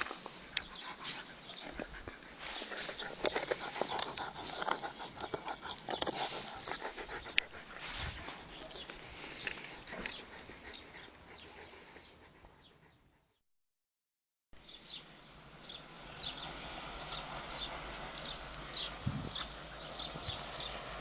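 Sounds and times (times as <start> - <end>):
rustles: 0.0 - 12.6
dog panting: 0.0 - 13.4.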